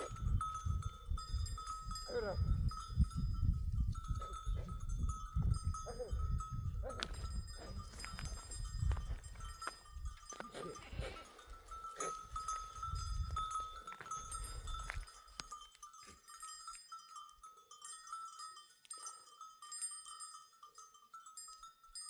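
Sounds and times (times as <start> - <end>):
livestock bells clinking: 0.0 - 22.0
goats and sheep bleating: 10.3 - 12.4.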